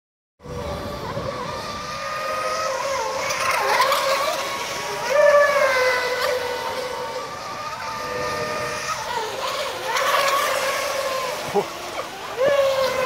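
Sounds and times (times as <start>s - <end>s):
model boat motors whining: 0.4s - 13.0s.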